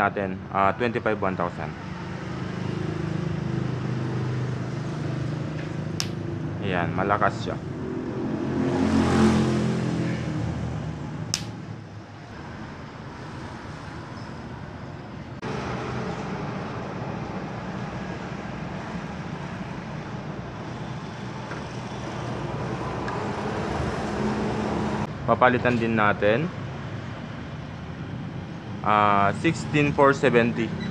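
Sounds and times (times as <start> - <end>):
traffic noise: 0.0 - 30.9
sharp click: 6.0 - 6.2, 11.4 - 11.6.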